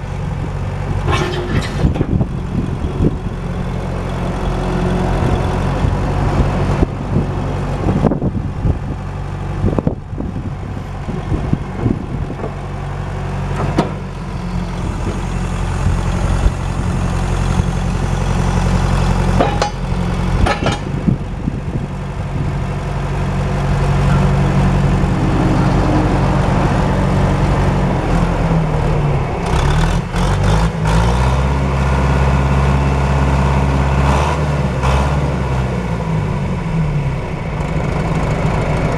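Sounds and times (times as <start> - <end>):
backhoe engine running: 0.0 - 38.9
sharp metal knocks and clanks: 1.0 - 2.2, 19.3 - 21.1.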